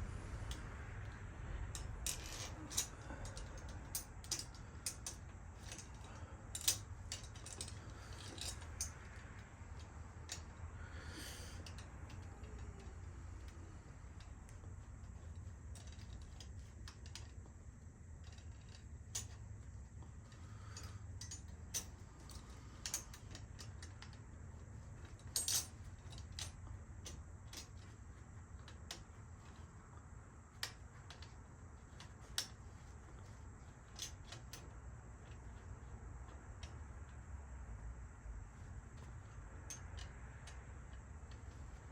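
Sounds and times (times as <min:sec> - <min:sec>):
low hum: 0:00.0 - 0:41.9
metallic clicks of tools: 0:01.8 - 0:13.6, 0:18.2 - 0:19.4, 0:20.2 - 0:24.2, 0:25.0 - 0:28.0, 0:39.0 - 0:41.9.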